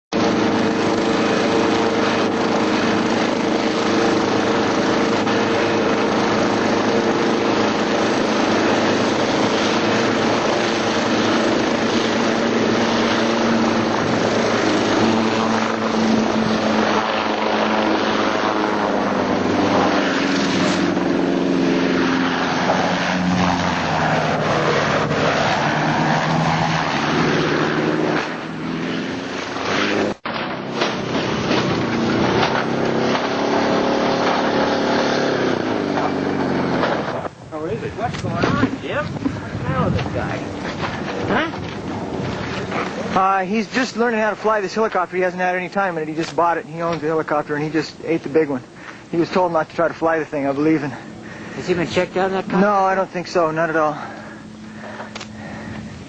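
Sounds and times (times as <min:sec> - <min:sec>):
helicopter engine and rotor: 0:00.1 - 0:28.7.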